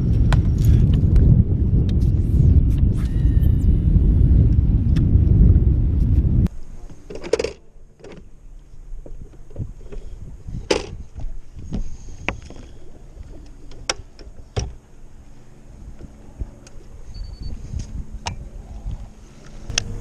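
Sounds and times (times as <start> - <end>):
knocks and clicks in boat: 6.5 - 20.0
water slapping boat hull: 6.5 - 20.0.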